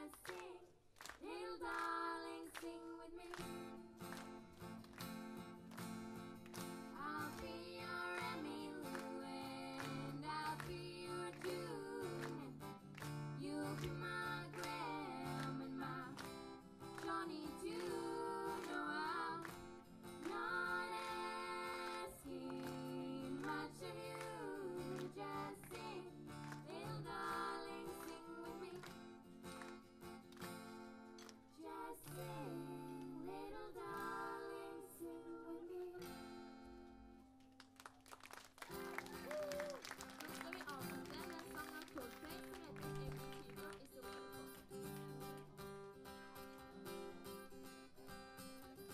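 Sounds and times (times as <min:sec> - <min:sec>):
acoustic guitar: 0:00.0 - 0:37.8, 0:38.7 - 0:48.9
person singing: 0:07.0 - 0:12.6, 0:13.4 - 0:16.3, 0:17.0 - 0:19.5, 0:20.2 - 0:26.1, 0:31.6 - 0:36.2.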